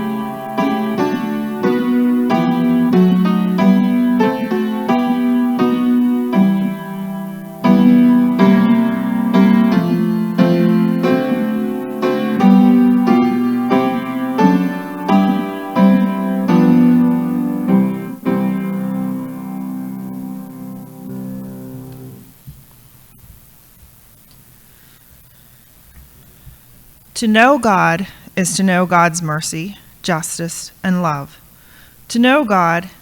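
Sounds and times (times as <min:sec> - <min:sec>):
piano notes and chords: 0:00.0 - 0:22.3.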